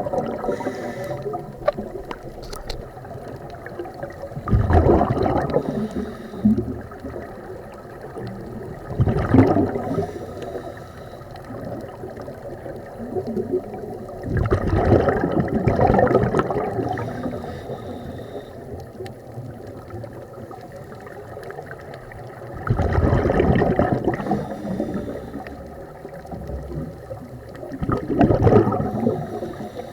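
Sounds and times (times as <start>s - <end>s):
underwater exhalation bubbles: 0.0s - 10.6s, 12.8s - 17.4s, 22.4s - 29.8s
underwater water noise: 0.0s - 29.9s.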